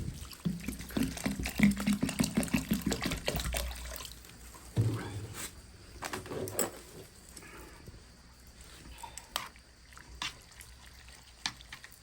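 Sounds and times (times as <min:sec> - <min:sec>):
water splashing over noodles: 0:00.0 - 0:04.9, 0:09.3 - 0:12.0.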